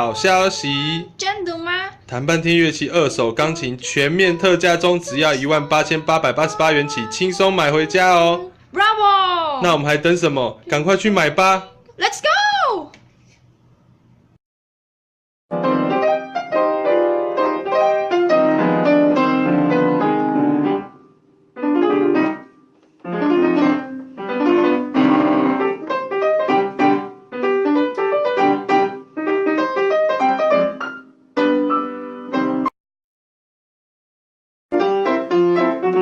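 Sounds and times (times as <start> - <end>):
piano playing chords: 0.0 - 1.2, 2.4 - 8.6, 15.5 - 32.7, 34.7 - 36.0.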